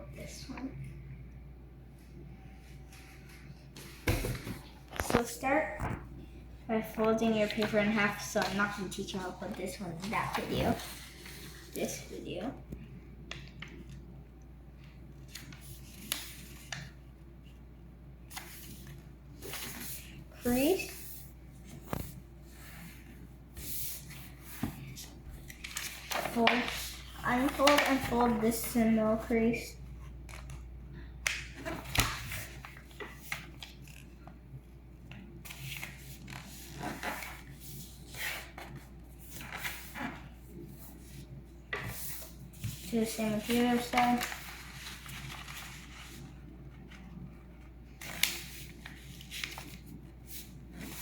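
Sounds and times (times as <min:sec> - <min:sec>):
paper rustling and crackling: 0:06.8 - 0:12.1, 0:23.6 - 0:29.4, 0:35.1 - 0:51.0.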